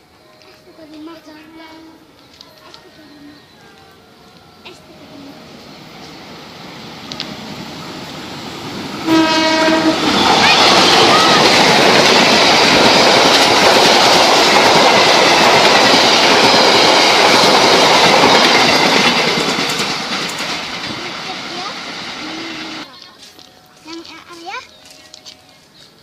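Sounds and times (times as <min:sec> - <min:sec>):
train coaches rushing past: 0:00.0 - 0:26.0
train horn blast: 0:09.0 - 0:11.5.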